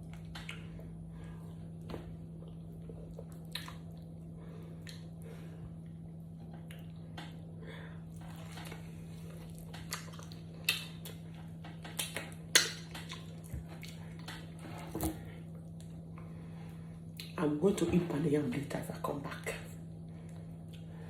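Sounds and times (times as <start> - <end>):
steady low hum: 0.0 - 21.0
person chewing: 2.3 - 4.2, 8.1 - 16.0.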